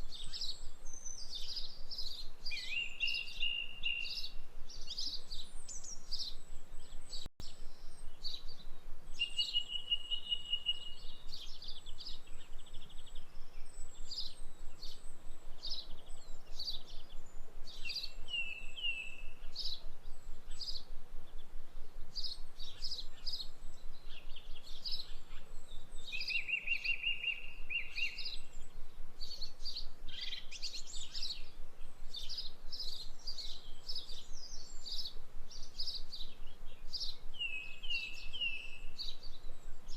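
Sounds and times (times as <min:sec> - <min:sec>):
birds chirping and trilling: 0:00.0 - 0:39.9
faint hiss: 0:00.0 - 0:39.9
bird whistled notes: 0:09.2 - 0:11.9.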